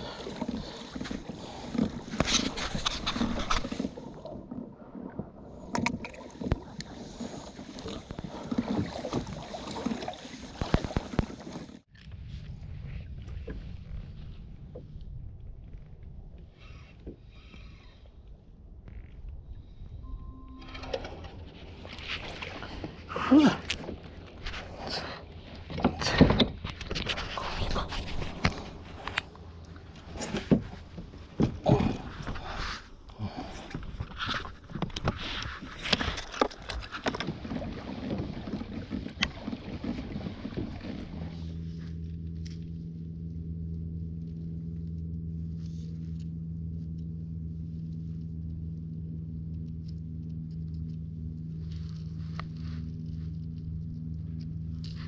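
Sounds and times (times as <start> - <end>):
low steady rumble: 0.0 - 9.5, 11.8 - 55.0
water sloshing against kayak hull: 0.0 - 43.1.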